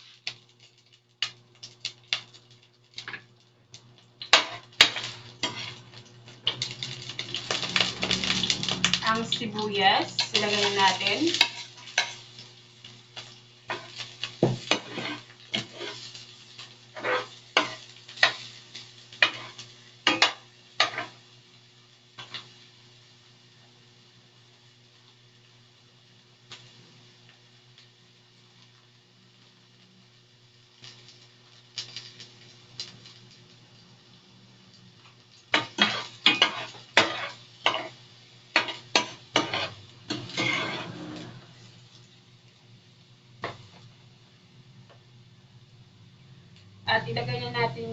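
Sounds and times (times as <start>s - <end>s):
light sizzle of oil: 0.0s - 47.9s
utensil scraping a wok: 4.3s - 5.9s, 13.7s - 16.3s, 16.9s - 18.5s, 19.2s - 21.2s, 35.5s - 41.8s.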